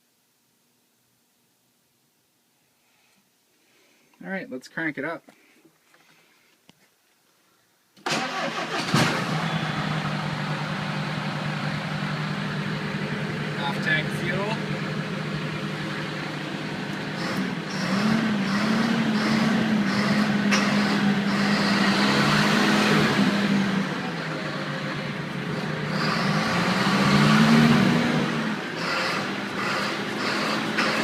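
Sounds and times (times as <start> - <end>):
tractor diesel engine running: 8.1 - 31.0.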